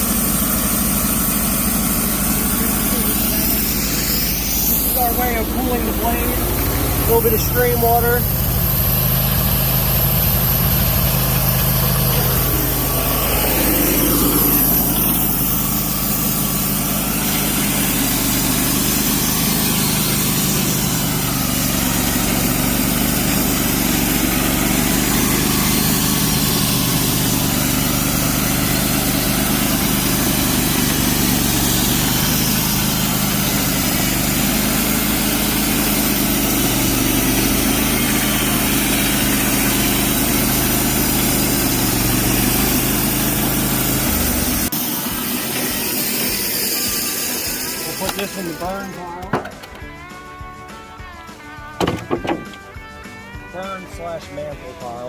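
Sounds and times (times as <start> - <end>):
band blade sawing log: 0.0 - 49.6, 51.8 - 52.8
sawmill gas engine running: 0.0 - 55.0.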